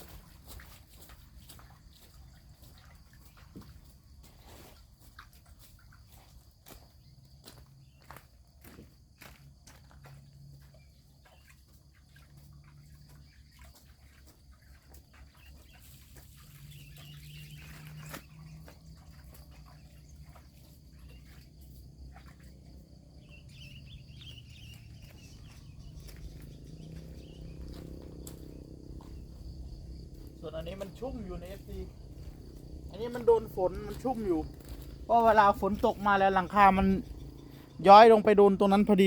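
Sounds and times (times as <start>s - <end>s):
faint bird chirps: 12.6s - 21.5s, 22.1s - 37.8s.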